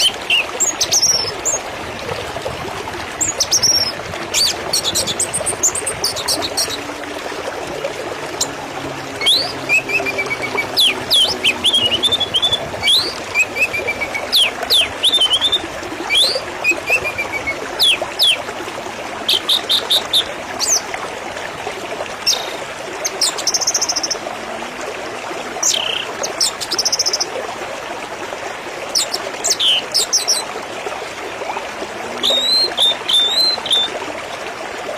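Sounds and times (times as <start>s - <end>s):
birds chirping and calling: 0.0s - 1.6s, 3.2s - 6.9s, 9.2s - 18.4s.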